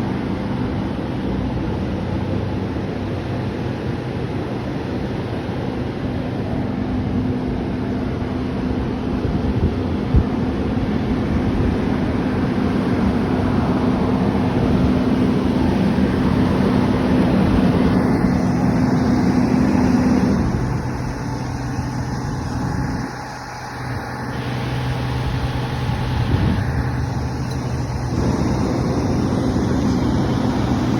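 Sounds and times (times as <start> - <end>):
heavy vehicle engine humming: 0.0 - 30.9
wind buffeting microphone: 6.4 - 30.9.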